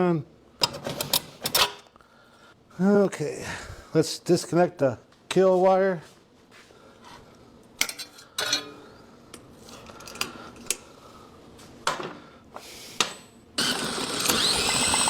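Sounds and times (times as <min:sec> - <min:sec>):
recoil starter pull: 0:13.6 - 0:15.0
small engine cranking: 0:13.6 - 0:15.0.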